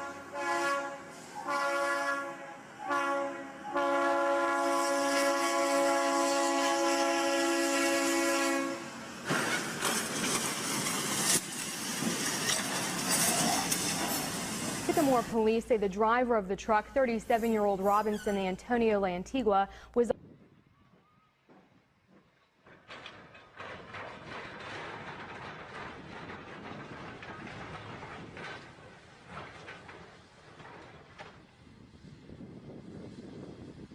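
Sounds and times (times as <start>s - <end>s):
train air horn chord: 0.0s - 9.0s
train wheels clattering on rails: 9.2s - 15.7s, 21.5s - 32.0s.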